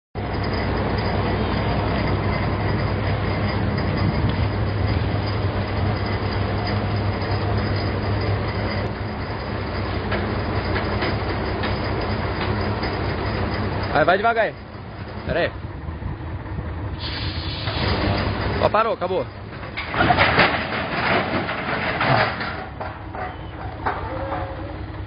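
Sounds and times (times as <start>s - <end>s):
low hum: 0.2s - 13.9s
train rumbling past: 0.2s - 25.0s.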